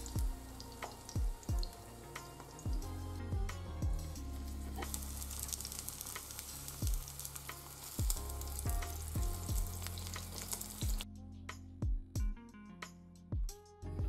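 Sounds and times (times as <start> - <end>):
eggplant sizzling in oil: 0.0 - 11.0
background music with steady beat: 0.0 - 14.0.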